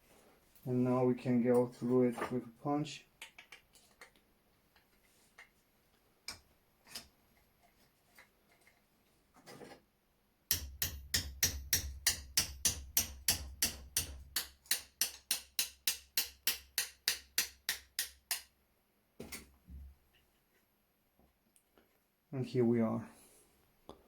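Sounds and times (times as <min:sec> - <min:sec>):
hammer tapping steel punch: 0:10.5 - 0:18.5.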